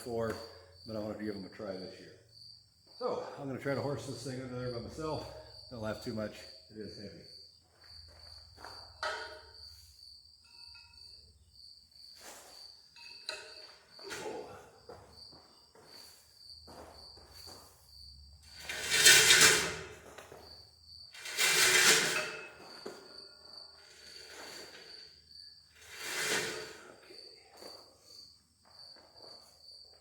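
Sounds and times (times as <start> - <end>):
crickets chirping: 0.0 - 30.0
loud metal rasping: 18.5 - 19.9, 21.2 - 22.5.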